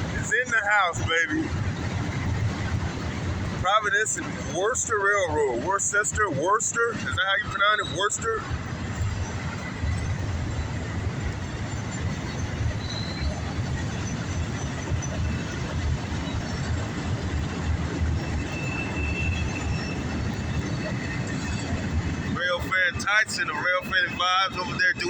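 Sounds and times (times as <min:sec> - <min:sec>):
freight train rolling past: 0:00.0 - 0:25.0
steel wheels rumbling on rails: 0:00.0 - 0:25.0
faint thin wheel squeal: 0:12.4 - 0:14.1, 0:18.4 - 0:21.7.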